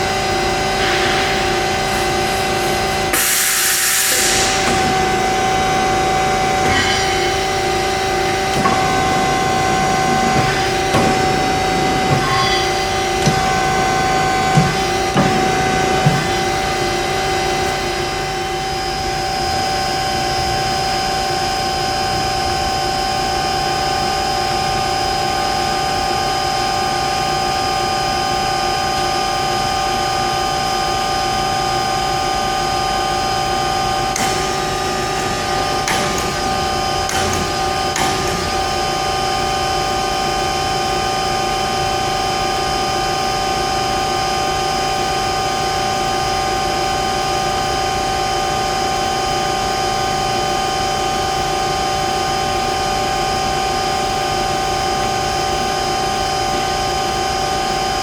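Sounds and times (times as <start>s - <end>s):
band saw whine: 0.0s - 58.0s
sharp clicks and knocks: 4.6s - 17.4s, 34.1s - 38.9s.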